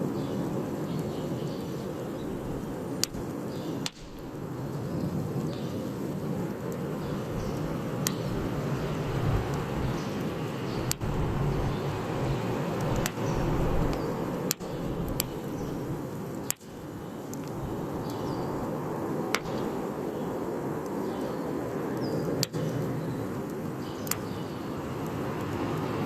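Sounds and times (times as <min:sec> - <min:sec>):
wood fire burning: 0:01.8 - 0:20.1.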